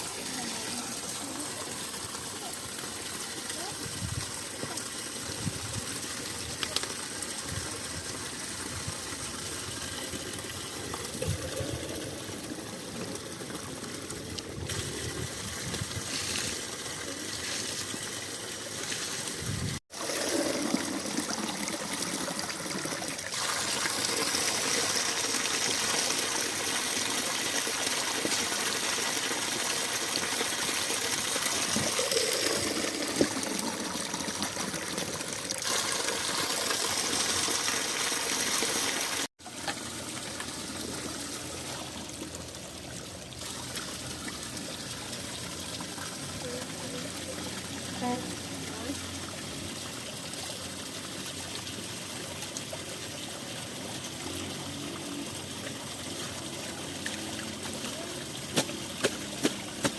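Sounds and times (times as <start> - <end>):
spring water running: 0.0 - 59.9.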